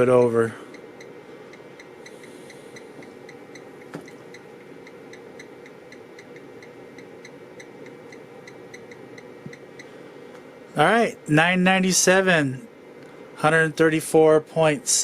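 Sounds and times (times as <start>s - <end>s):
light regular ticking: 0.0s - 10.0s
steady electrical hum: 0.0s - 15.0s.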